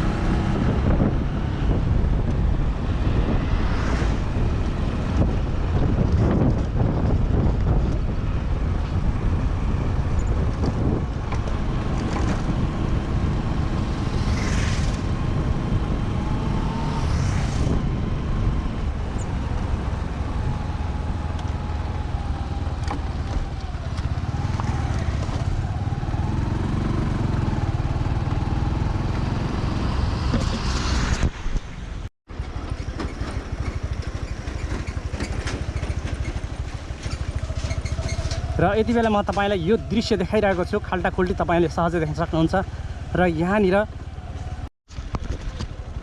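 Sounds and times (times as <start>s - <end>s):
vehicle engine and road rumble: 0.0s - 46.0s
wind buffeting microphone: 0.0s - 46.0s
brief rushing sounds: 14.0s - 15.2s.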